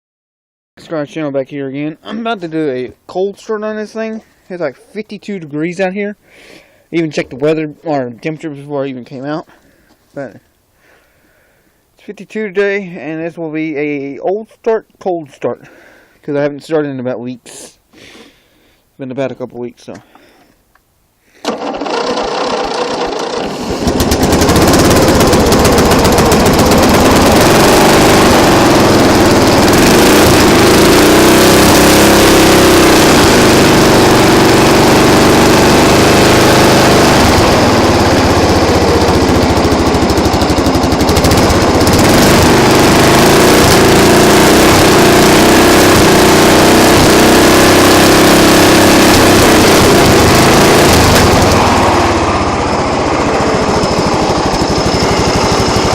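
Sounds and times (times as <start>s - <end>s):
engine cranking and running: 21.4s - 55.9s.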